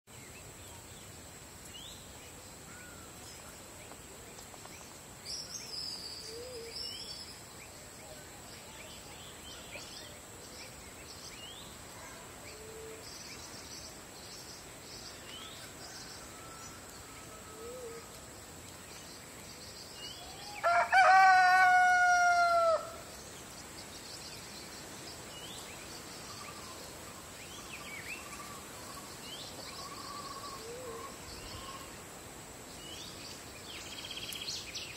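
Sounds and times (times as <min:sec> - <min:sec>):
small birds chirping: 0:00.1 - 0:17.3, 0:23.1 - 0:34.9
rooster crowing: 0:15.7 - 0:18.0, 0:20.3 - 0:23.0.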